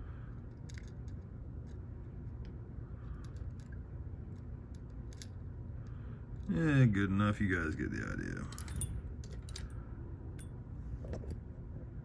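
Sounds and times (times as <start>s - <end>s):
steady low hum: 0.0s - 12.0s
light clicks of metal parts: 0.2s - 6.6s, 8.3s - 11.5s.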